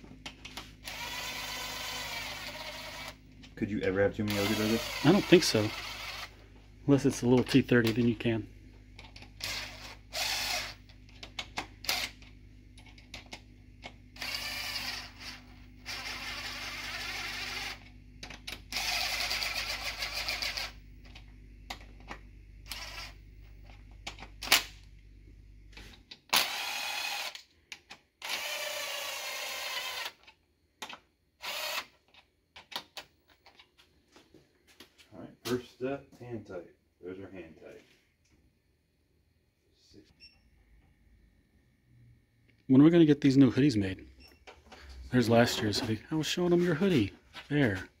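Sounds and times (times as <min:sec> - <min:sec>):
steady low hum: 0:00.0 - 0:31.8
cordless power tool running: 0:00.7 - 0:03.4, 0:04.1 - 0:06.6, 0:09.3 - 0:11.0, 0:14.1 - 0:21.2, 0:22.6 - 0:23.2, 0:26.4 - 0:27.5, 0:28.2 - 0:30.2, 0:31.4 - 0:31.9.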